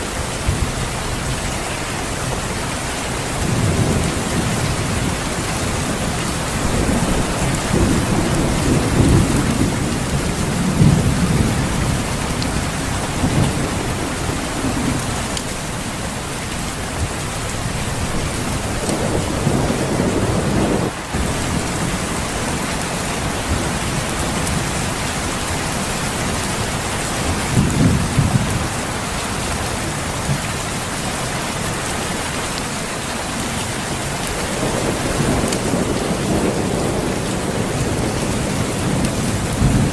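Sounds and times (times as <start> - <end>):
heavy rain: 0.0 - 39.9
thunder rolling: 3.4 - 15.3, 17.0 - 24.7, 34.4 - 39.9.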